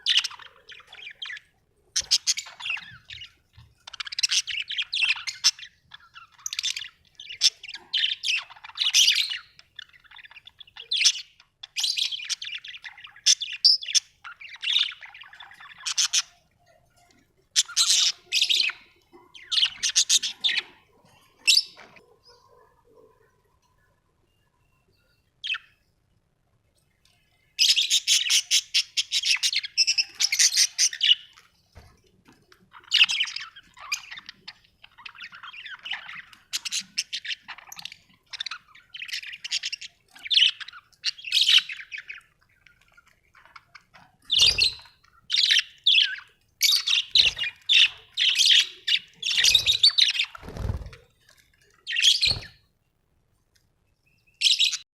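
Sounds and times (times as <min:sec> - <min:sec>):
budgerigars chirping: 0:00.0 - 0:16.4, 0:17.6 - 0:20.8, 0:27.6 - 0:31.3, 0:32.8 - 0:51.0, 0:51.8 - 0:52.6.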